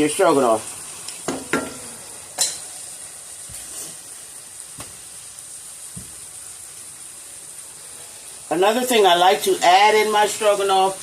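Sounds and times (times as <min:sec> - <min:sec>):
beef sizzling in a pan: 0:00.0 - 0:11.0
utensil knocking against pan: 0:01.3 - 0:01.8.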